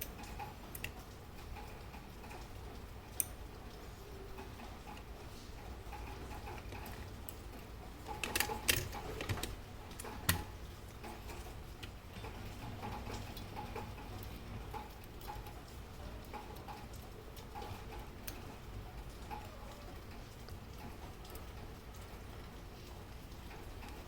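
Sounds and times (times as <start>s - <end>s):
sharp clicks and knocks: 8.0s - 14.2s.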